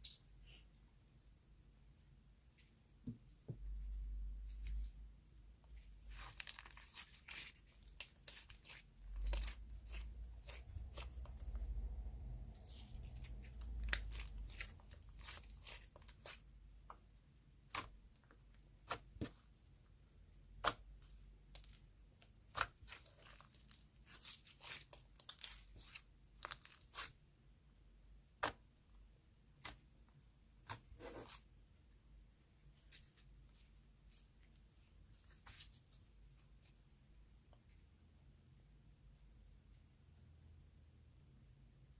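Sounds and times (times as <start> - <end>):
slime tearing and crackling: 6.0 - 11.8, 12.6 - 16.4, 22.4 - 27.2.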